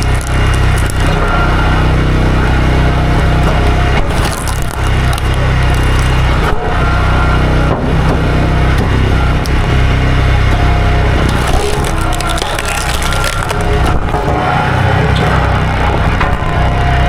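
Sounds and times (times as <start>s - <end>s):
chainsaw cutting stump: 11.2s - 13.7s.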